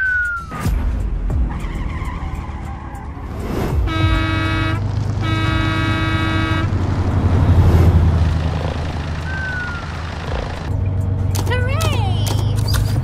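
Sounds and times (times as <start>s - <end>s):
low engine rumble: 3.8s - 13.0s
vehicle horn blasts: 3.9s - 6.8s.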